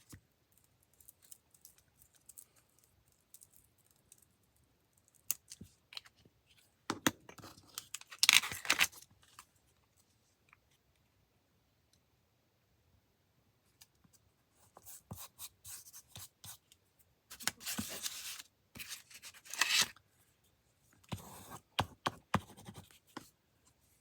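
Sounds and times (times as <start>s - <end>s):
paper rustling: 17.3s - 20.0s.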